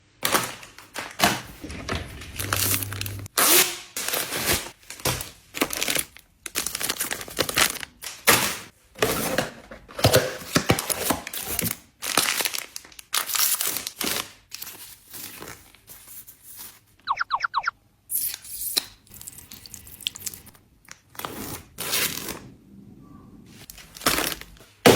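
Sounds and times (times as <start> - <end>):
plastic packaging crinkling: 4.0 - 8.4, 10.8 - 15.9.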